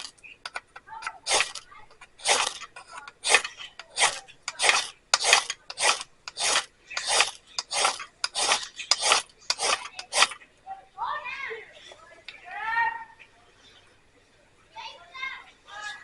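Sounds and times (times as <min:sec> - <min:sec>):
steel striker scraping fire rod: 0:00.0 - 0:10.4.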